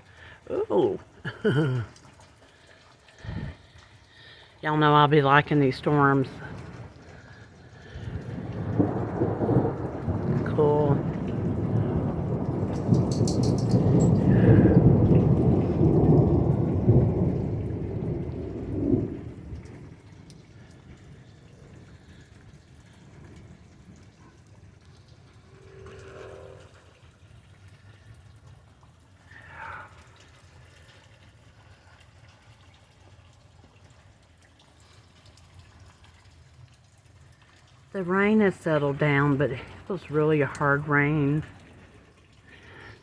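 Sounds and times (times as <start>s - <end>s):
heavy rain: 0.0s - 43.0s
thunder rumbling: 5.4s - 27.0s
splash or rustle: 25.3s - 27.1s.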